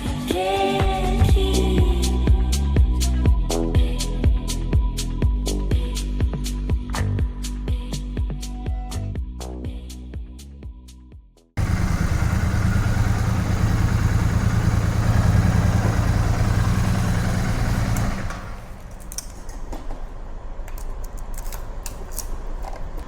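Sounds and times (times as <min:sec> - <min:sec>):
motorcycle engine running: 0:11.6 - 0:19.1.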